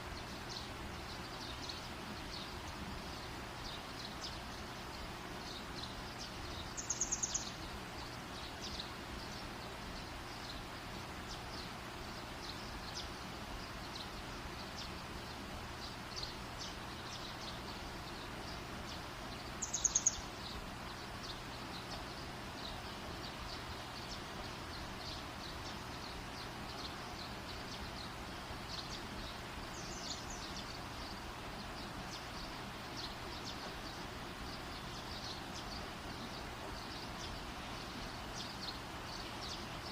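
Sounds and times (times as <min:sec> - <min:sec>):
bird high-pitched call: 0:06.8 - 0:07.5, 0:19.6 - 0:20.3.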